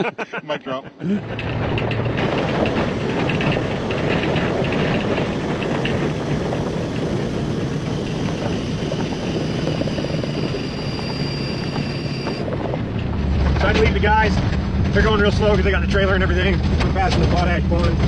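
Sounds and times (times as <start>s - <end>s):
road noise: 1.0s - 18.0s
vehicle engine running: 1.3s - 18.0s
thin high whine: 2.2s - 14.4s.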